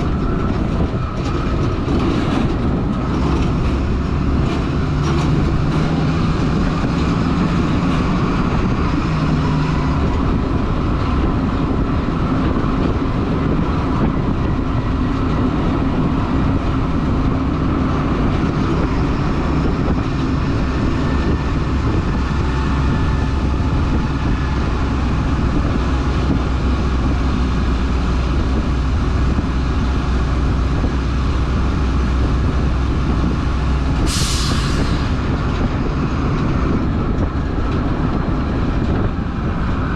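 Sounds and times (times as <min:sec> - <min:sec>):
truck diesel engine rumbling: 0:00.0 - 0:39.9
short hiss: 0:34.1 - 0:35.0.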